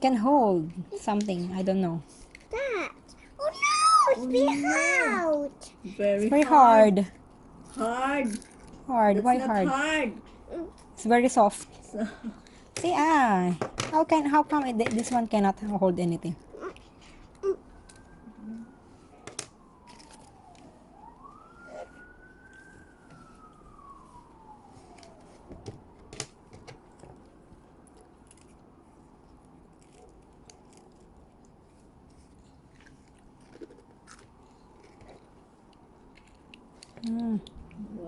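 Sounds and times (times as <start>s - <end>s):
faint siren wailing: 0.1s - 12.2s, 14.0s - 31.1s
small clicks and crunches: 16.6s - 18.2s, 19.3s - 20.7s, 24.8s - 28.6s, 29.3s - 37.8s.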